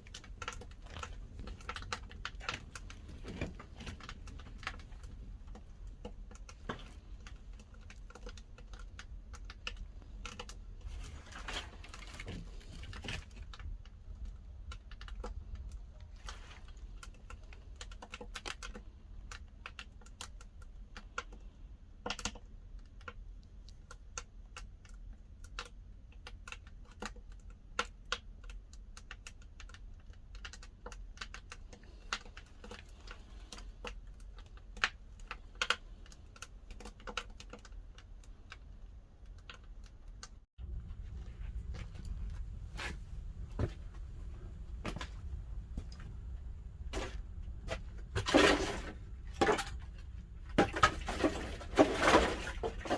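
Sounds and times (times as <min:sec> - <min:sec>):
low fire rumble: 0:40.6 - 0:48.2.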